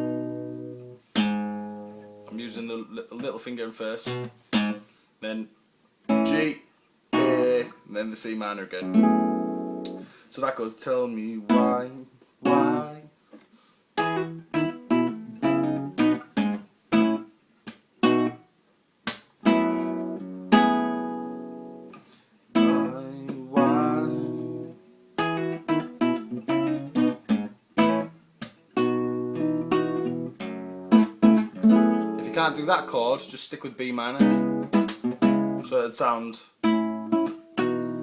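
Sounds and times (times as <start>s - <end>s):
acoustic guitar strummed chords: 0.0s - 2.4s, 6.1s - 7.8s, 8.8s - 10.2s, 11.4s - 13.1s, 14.0s - 17.3s, 18.0s - 18.4s, 19.4s - 35.7s, 36.6s - 38.0s.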